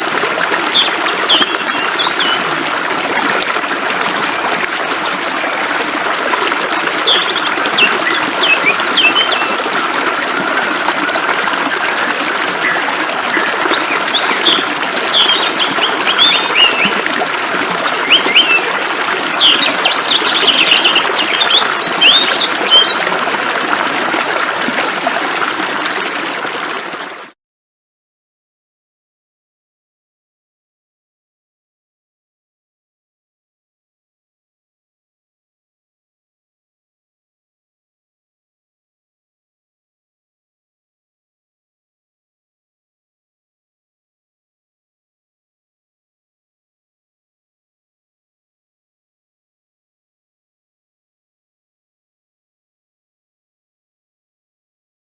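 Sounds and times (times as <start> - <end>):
small birds chirping: 13.7 - 16.9.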